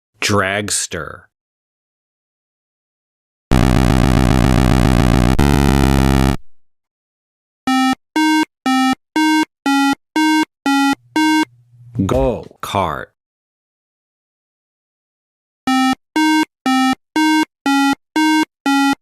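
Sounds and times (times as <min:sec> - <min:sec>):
harsh electronic buzzing tone: 0:03.5 - 0:06.6, 0:10.7 - 0:12.0
short electronic beeps: 0:07.7 - 0:11.5.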